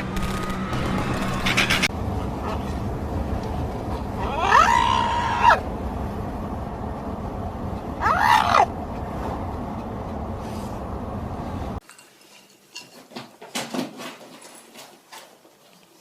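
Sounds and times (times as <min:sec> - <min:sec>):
loud screaming cries: 0:04.2 - 0:05.6, 0:08.0 - 0:08.7.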